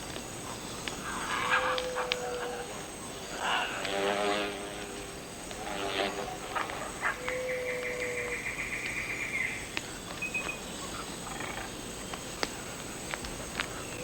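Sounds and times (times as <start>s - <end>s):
scattered clicks: 9.7s - 14.0s.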